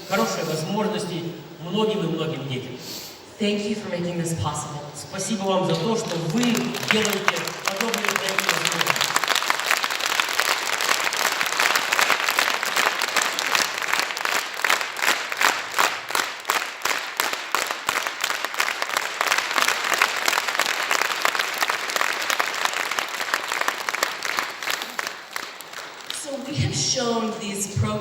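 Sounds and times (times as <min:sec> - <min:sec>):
audience applauding: 0:05.2 - 0:26.6.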